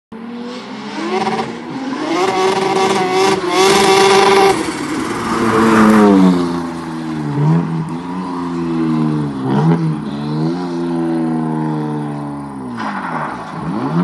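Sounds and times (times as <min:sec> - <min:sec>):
car engine revving: 0:00.2 - 0:14.0
loud rushing noise: 0:00.4 - 0:07.8.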